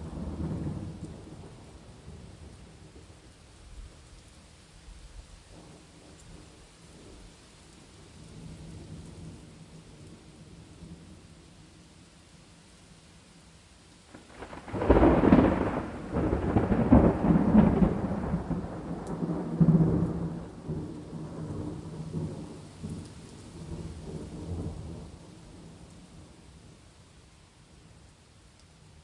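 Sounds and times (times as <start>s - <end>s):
thunderclap rolling rumble: 0.0s - 3.2s, 14.1s - 26.4s
steady rain hiss: 0.0s - 29.0s.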